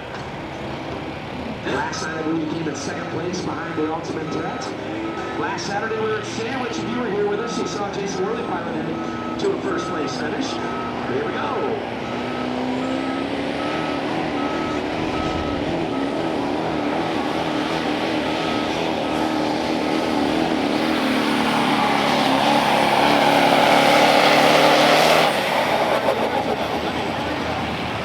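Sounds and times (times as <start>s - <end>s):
engine at full throttle: 0.0s - 28.0s
steady beeping: 1.7s - 28.0s.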